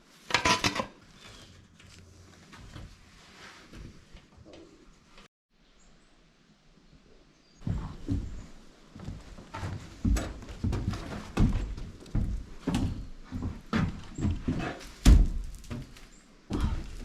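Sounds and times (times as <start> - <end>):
irregular knocks and thuds: 7.6 - 17.0.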